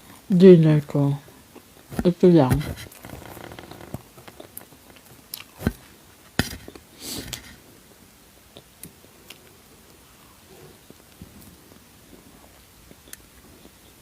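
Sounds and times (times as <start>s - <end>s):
soft chewing clicks: 3.6s - 5.6s, 8.5s - 14.0s.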